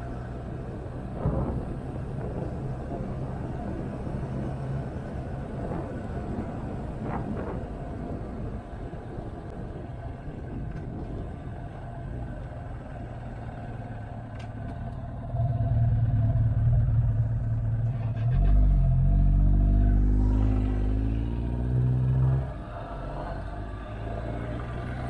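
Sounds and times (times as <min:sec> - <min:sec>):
wind rumble: 0:00.0 - 0:25.0
motorcycle engine accelerating: 0:15.0 - 0:25.0.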